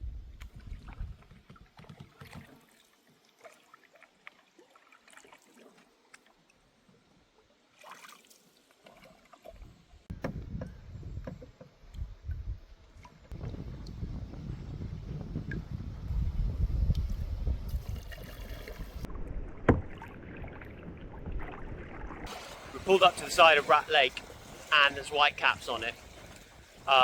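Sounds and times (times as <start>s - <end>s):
wind rumbling on microphone: 0.0s - 2.0s, 9.6s - 27.0s
water splashing around canoe: 0.4s - 7.0s, 7.7s - 10.6s, 16.8s - 27.0s.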